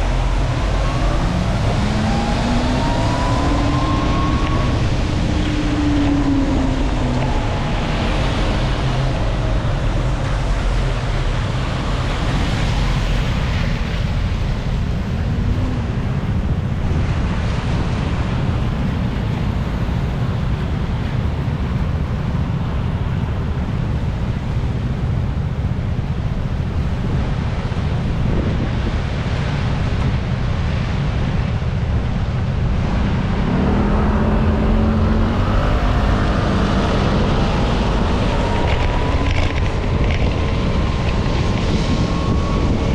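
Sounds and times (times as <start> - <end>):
faint engine tone: 0.0 - 17.0
road and vehicle noise: 0.0 - 42.9
wind rushing over microphone: 0.0 - 42.9.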